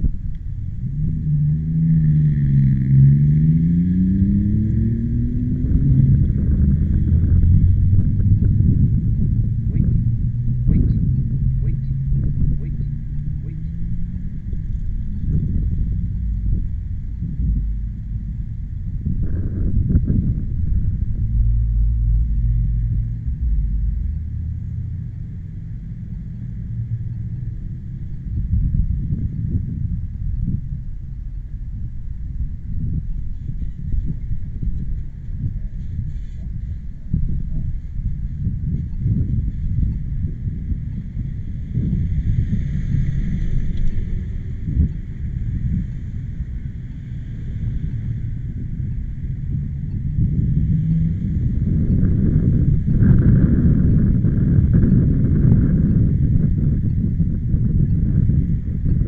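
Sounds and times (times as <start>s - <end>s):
low steady rumble: 0.0s - 59.0s
vehicle engine running: 0.0s - 59.0s
wind buffeting microphone: 0.0s - 59.0s.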